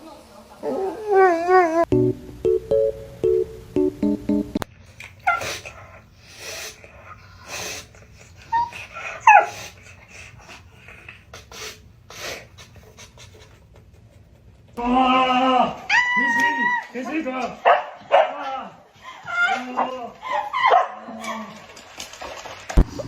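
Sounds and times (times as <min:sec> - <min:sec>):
dog whining: 0:00.6 - 0:01.9.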